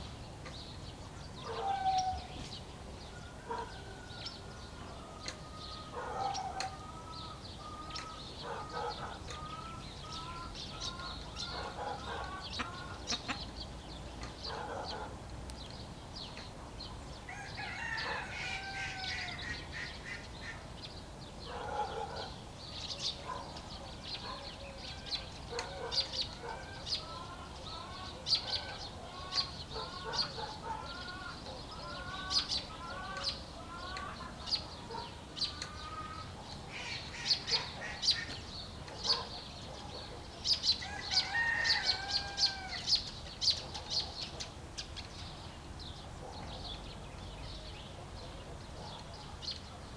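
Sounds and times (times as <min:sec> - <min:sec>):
small birds chirping: 0:00.0 - 0:49.9
hens clucking: 0:08.5 - 0:13.5
rooster crowing: 0:17.3 - 0:19.6, 0:40.8 - 0:43.0.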